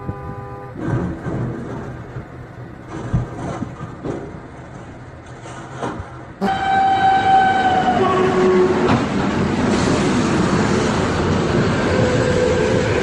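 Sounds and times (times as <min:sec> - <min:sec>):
train horn: 0:00.0 - 0:00.8, 0:06.4 - 0:09.0, 0:11.8 - 0:13.0
car road noise: 0:00.0 - 0:13.0
train passing close: 0:00.0 - 0:13.0.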